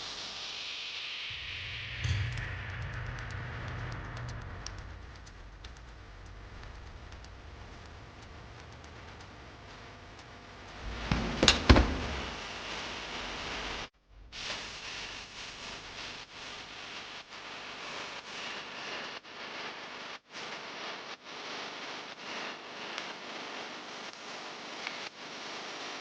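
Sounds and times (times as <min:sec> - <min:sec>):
cabinet door knocks: 0:11.0 - 0:12.3.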